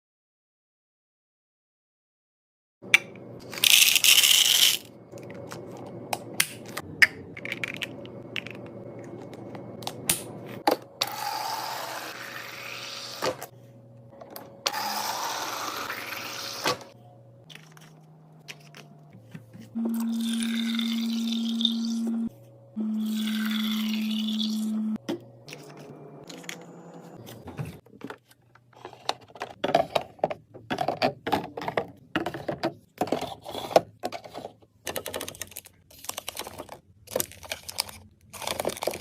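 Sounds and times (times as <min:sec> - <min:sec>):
clicks and taps of containers: 0:29.0 - 0:37.3.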